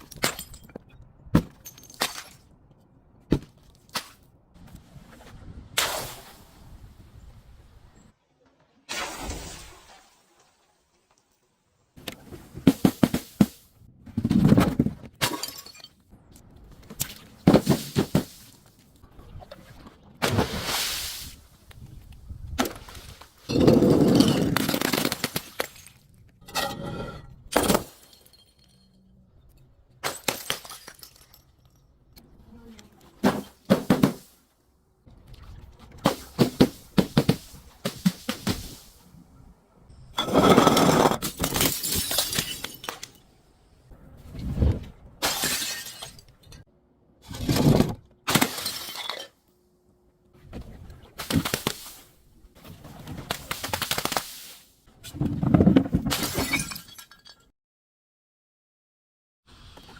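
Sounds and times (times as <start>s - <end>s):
glass bottles shattering: 0.0s - 2.4s, 15.2s - 16.0s, 23.5s - 29.1s, 30.0s - 31.9s, 40.2s - 43.2s, 45.2s - 46.6s, 48.3s - 49.4s, 56.0s - 57.5s
breaking and crunching: 23.5s - 26.3s.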